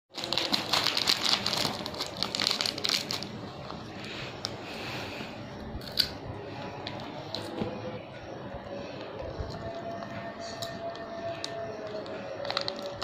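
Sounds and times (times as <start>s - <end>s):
plastic snack packet crinkling: 0.1s - 3.9s, 9.0s - 13.0s.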